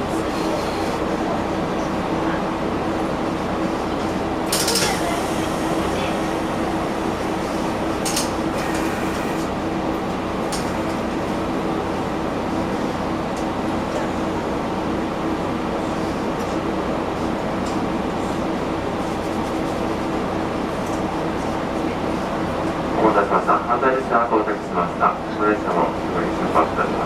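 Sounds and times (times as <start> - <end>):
diesel engine idling: 0.0 - 16.3.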